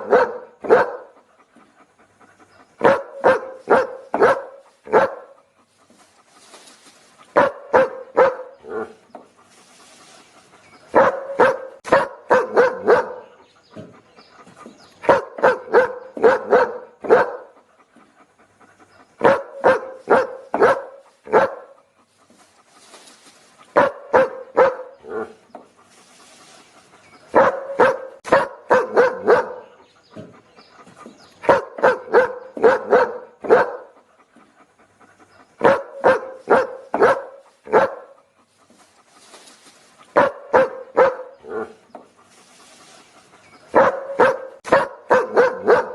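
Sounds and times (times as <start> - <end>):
dog barking: 0.0 - 1.2, 2.8 - 5.4, 7.3 - 9.0, 10.9 - 13.4, 15.0 - 17.6, 19.2 - 21.8, 23.7 - 25.4, 27.3 - 30.3, 31.4 - 34.0, 35.6 - 38.2, 40.1 - 41.8, 43.7 - 45.9.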